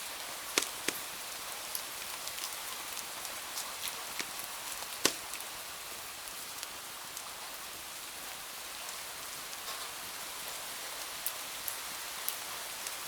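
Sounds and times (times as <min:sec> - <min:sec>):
steady rain falling: 0:00.0 - 0:13.0
wood fire crackling: 0:00.4 - 0:05.6.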